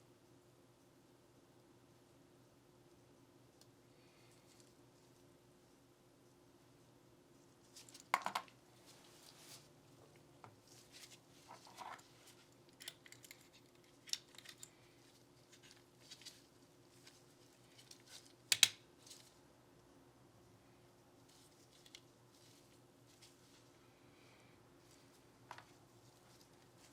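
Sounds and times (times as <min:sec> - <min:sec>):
light clicks of pistol parts: 0:12.7 - 0:14.8, 0:18.5 - 0:18.8
hands rustling: 0:21.2 - 0:26.9.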